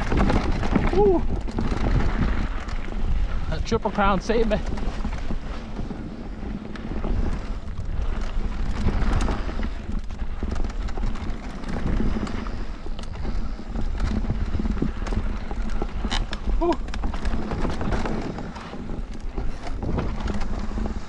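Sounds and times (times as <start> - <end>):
bike tyres rumbling over dirt: 0.0 - 21.0
bike clattering and knocking: 4.2 - 21.0.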